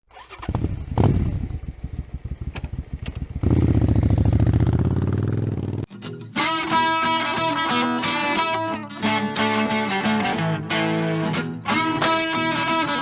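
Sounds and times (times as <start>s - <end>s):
small engine puttering: 0.0s - 5.9s.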